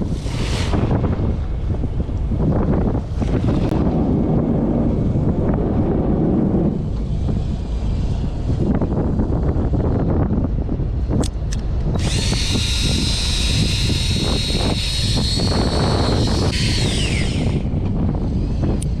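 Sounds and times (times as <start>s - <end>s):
boat engine rumble: 0.0s - 19.0s
wind: 0.0s - 19.0s
fishing reel motor whining: 11.9s - 18.9s.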